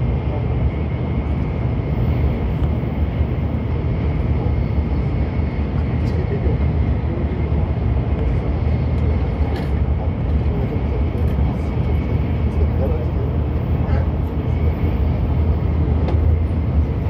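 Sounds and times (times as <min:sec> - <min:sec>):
train cabin low rumble: 0:00.0 - 0:17.0.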